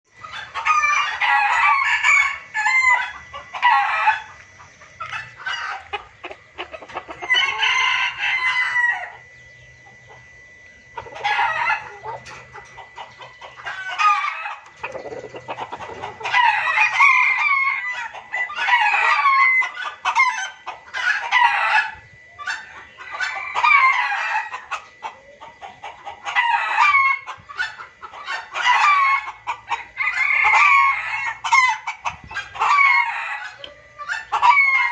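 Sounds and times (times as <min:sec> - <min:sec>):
junglefowl clucking and crowing: 0:00.1 - 0:34.9.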